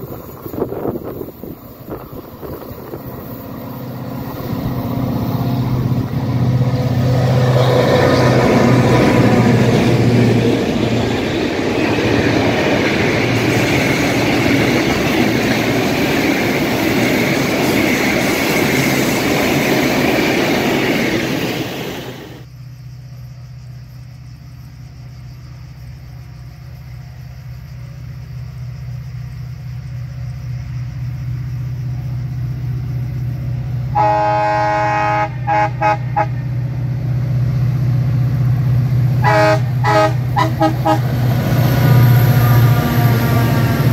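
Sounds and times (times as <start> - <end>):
diesel train engine hum: 0.0 - 43.9
train wheels on rails: 0.0 - 43.9
train horn blasts and toots: 33.9 - 36.6, 39.2 - 41.3.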